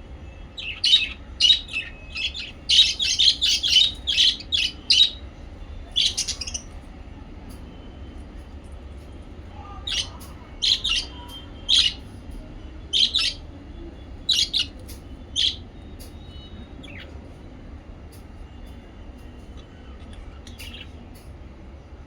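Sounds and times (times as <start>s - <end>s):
parrots chirping: 0.2s - 6.8s, 9.8s - 12.1s, 12.9s - 17.2s, 19.5s - 21.0s.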